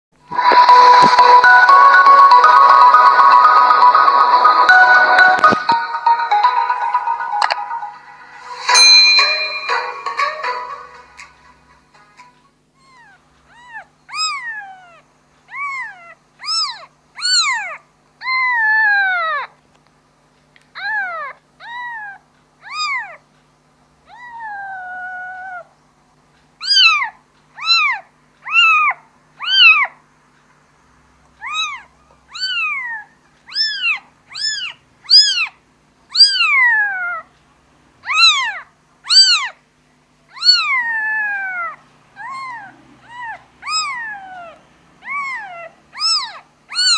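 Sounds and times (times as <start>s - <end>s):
kitten meowing: 12.8s - 19.5s, 20.8s - 23.2s, 24.1s - 25.6s, 26.6s - 30.0s, 31.4s - 37.3s, 38.0s - 39.6s, 40.3s - 46.9s.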